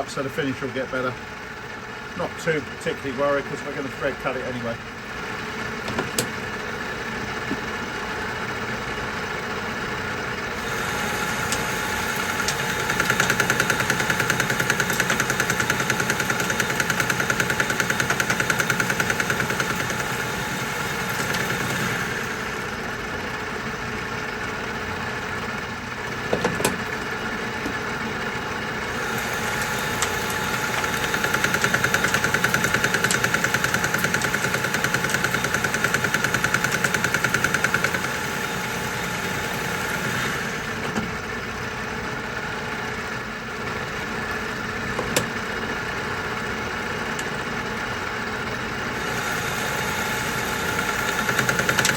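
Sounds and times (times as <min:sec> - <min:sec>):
metal lathe cutting steel: 0:10.4 - 0:23.4, 0:26.0 - 0:40.9, 0:48.8 - 0:51.9.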